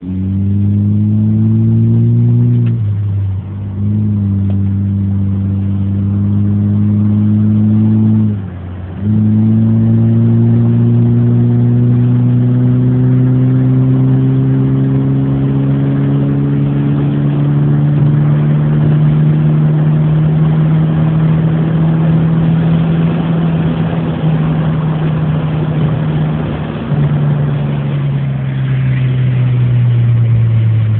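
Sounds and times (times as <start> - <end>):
car engine revving: 0.0 - 30.9.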